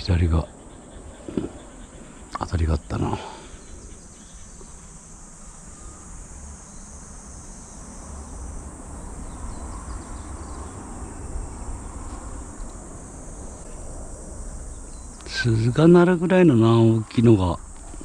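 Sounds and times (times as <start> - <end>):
insects chirping: 0.0 - 18.0
low uneven rumble: 0.0 - 18.0.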